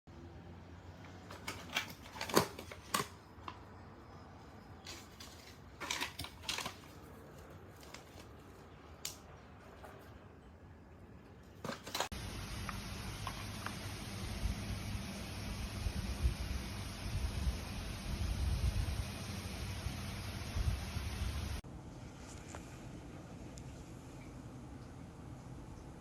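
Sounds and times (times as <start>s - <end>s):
faint steady hum: 0.1s - 26.0s
rustling: 4.8s - 10.3s, 22.0s - 24.0s.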